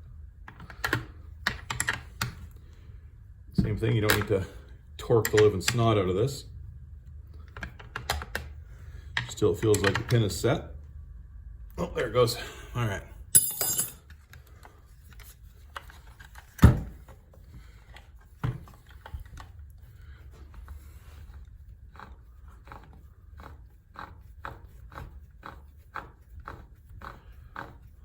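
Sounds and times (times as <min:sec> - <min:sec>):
metallic clink: 0:13.4 - 0:14.0.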